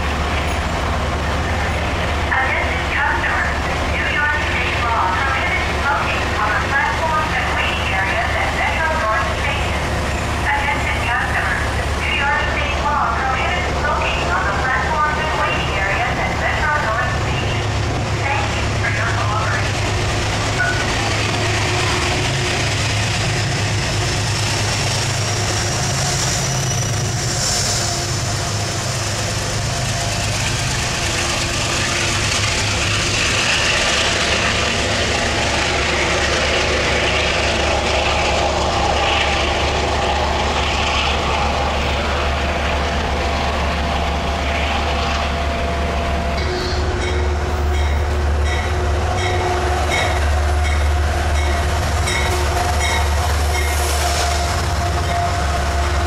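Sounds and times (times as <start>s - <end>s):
rail and wheel noise: 0.0s - 56.0s
train engine drone: 0.0s - 56.0s.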